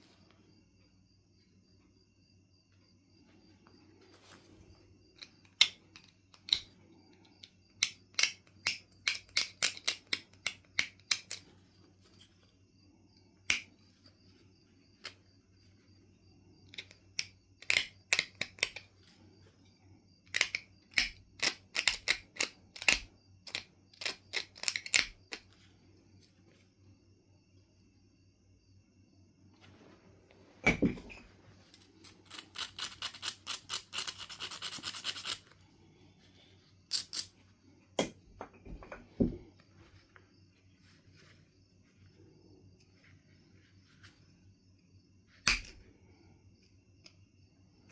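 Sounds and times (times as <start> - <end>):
flint clicking under knapping tools: 5.2 - 11.5, 13.4 - 14.1, 16.7 - 18.9, 20.2 - 25.5, 31.7 - 35.6, 36.9 - 37.4, 45.4 - 45.8.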